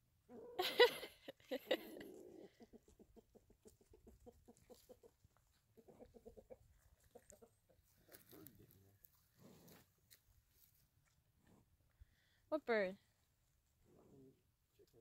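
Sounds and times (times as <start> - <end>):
chickens clucking rapidly: 2.0 - 7.9.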